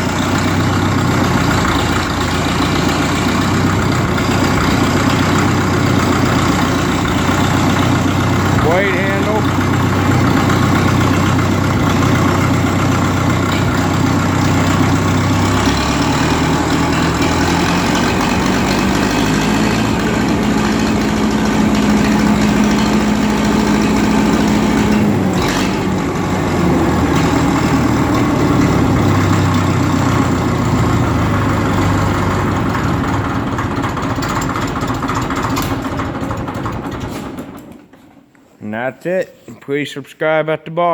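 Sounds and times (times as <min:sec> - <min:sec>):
diesel engine running: 0:00.0 - 0:37.8.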